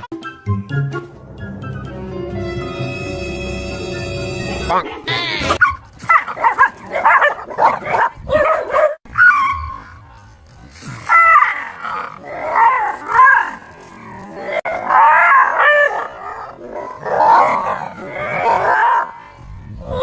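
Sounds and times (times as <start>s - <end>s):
dog barking growling and howling: 4.5s - 10.0s, 11.0s - 20.0s.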